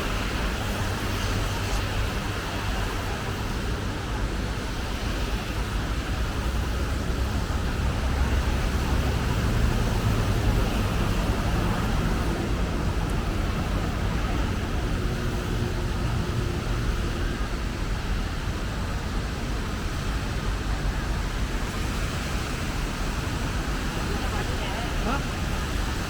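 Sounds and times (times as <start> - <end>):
heavier engine hum: 0.0 - 26.0
passing cars: 0.0 - 26.0.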